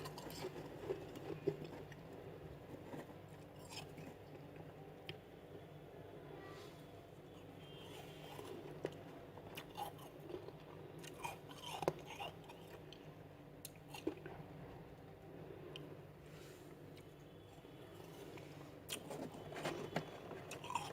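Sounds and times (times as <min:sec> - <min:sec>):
icy frost crunching when chewed: 0:00.0 - 0:04.7, 0:07.9 - 0:14.4, 0:16.9 - 0:20.9.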